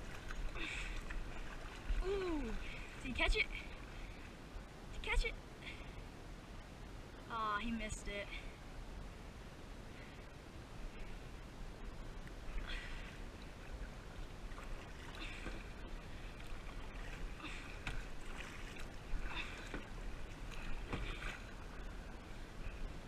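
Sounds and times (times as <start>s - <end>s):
kayak paddle splashing water: 0.0s - 3.0s, 12.5s - 22.8s
steady low rumble: 0.0s - 23.0s.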